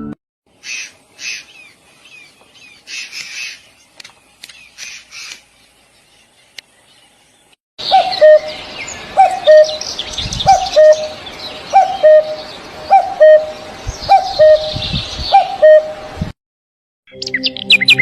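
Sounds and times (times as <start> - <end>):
higher bird chirping: 0.6 - 16.0
bird's low two-part call: 7.8 - 16.0.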